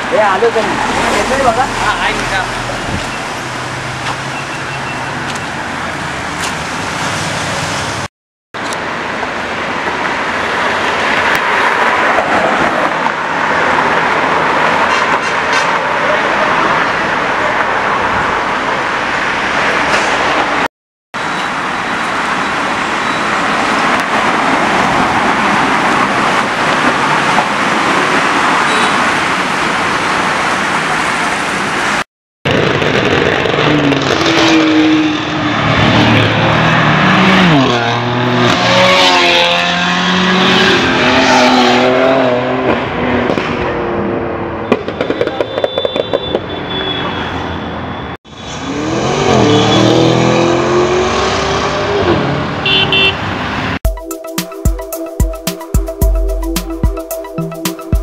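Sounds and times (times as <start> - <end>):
city road traffic: 0.0 - 58.0
car engine revving and accelerating: 32.9 - 44.6, 48.5 - 52.6.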